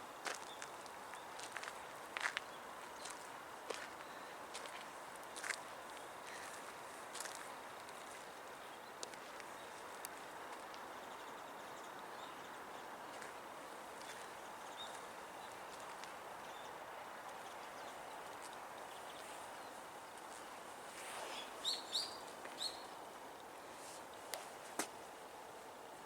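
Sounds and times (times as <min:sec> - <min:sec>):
outdoor background hiss: 0:00.0 - 0:26.0
bird calls: 0:21.1 - 0:23.0.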